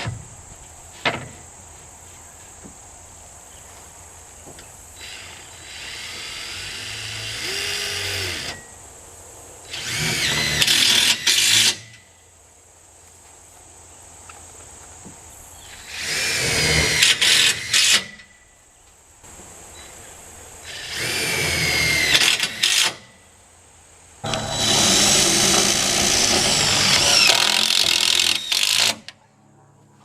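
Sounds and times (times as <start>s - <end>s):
power drill driving screws: 5.0s - 8.6s, 9.7s - 12.0s, 15.9s - 18.1s, 20.7s - 23.0s, 24.3s - 29.1s.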